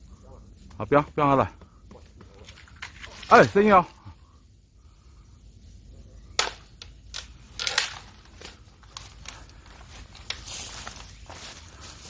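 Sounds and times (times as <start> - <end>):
sticks cracking and snapping: 6.4 - 10.5.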